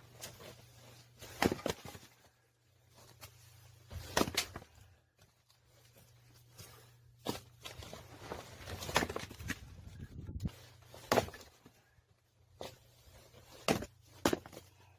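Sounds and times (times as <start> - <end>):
axe striking firewood: 1.2 - 2.0, 3.9 - 4.7, 11.0 - 11.5, 13.6 - 14.8.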